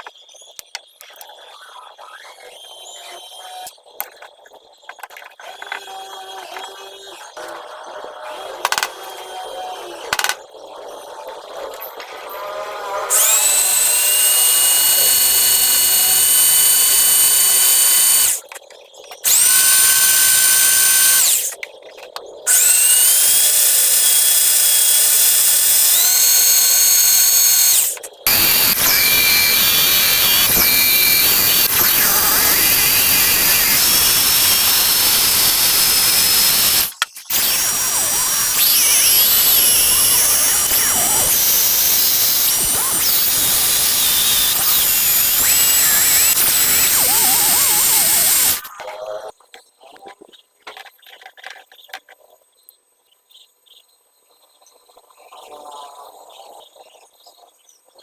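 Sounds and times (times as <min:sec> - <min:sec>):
power tool motor whining: 0:08.4 - 0:10.4, 0:12.9 - 0:18.5, 0:19.2 - 0:21.6, 0:22.5 - 0:48.7.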